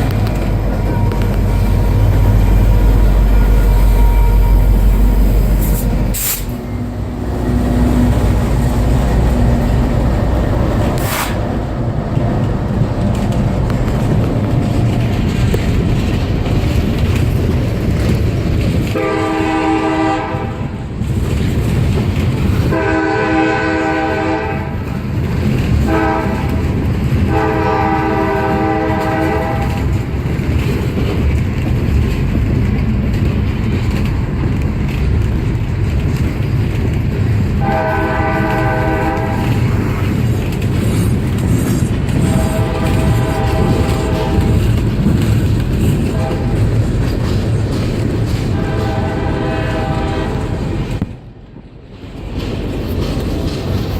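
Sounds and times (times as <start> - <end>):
diesel locomotives rumbling: 0.0 - 53.9
train air horn blasts: 0.7 - 8.2, 18.9 - 20.7, 22.7 - 24.8, 25.8 - 26.7, 27.3 - 30.0, 37.6 - 39.7, 42.1 - 44.7, 46.0 - 46.8, 48.4 - 50.8.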